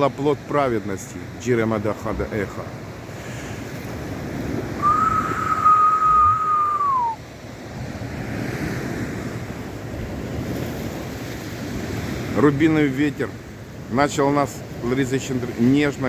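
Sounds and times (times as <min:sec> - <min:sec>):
wind buffeting microphone: 0:02.8 - 0:12.4
whistle-like tone: 0:04.8 - 0:07.2.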